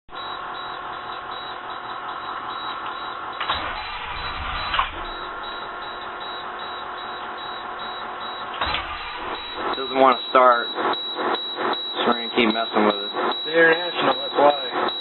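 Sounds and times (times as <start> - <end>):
starter motor cranking diesel engine: 3.4 - 5.9, 8.5 - 9.9
engine rumble burst: 3.4 - 6.6, 8.5 - 11.8.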